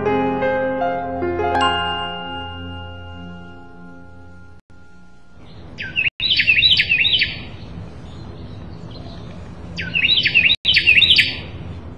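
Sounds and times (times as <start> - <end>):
songbird chirping: 5.4 - 11.6.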